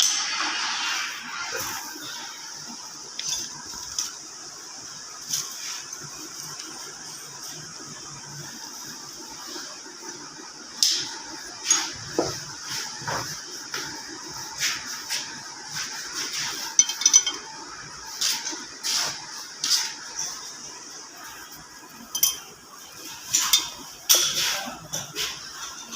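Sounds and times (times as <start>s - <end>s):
steady high hiss: 0.0s - 25.9s
metal tools clinking on workbench: 16.8s - 17.6s, 22.1s - 22.5s.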